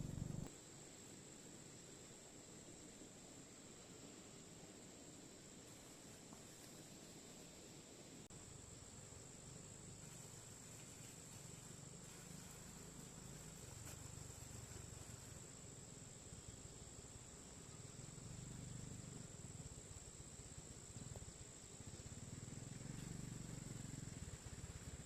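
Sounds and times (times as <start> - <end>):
low rumble: 0.0 - 0.5
insects chirring: 0.0 - 25.0.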